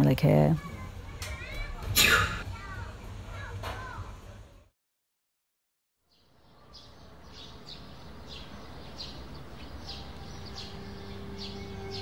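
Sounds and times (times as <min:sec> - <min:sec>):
bird chirping: 0:06.0 - 0:12.0.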